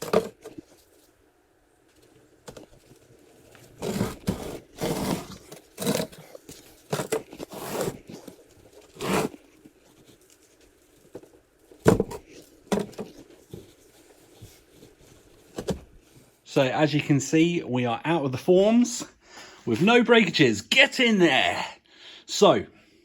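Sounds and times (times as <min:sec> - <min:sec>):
mould scraping and tearing: 0:02.4 - 0:16.3.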